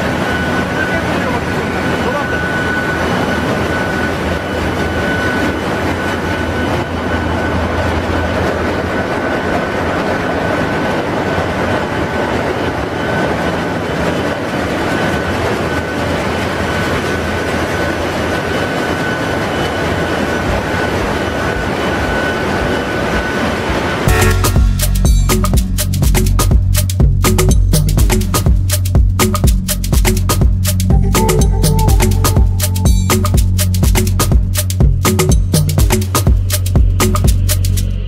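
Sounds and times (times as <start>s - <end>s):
engine room machinery rumble: 0.0s - 38.0s
thin steady whine: 0.0s - 38.0s.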